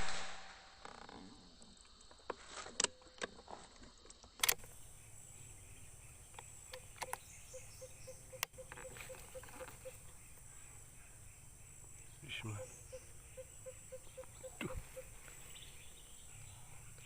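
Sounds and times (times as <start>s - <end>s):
insects buzzing: 0.5s - 17.0s
sharp clicks: 4.1s - 4.8s, 6.3s - 7.3s.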